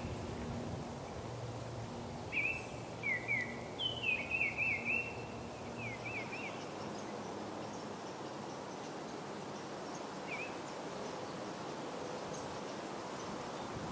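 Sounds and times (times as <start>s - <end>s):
low outdoor background noise: 0.0s - 13.9s
songbird whistling: 2.3s - 5.2s.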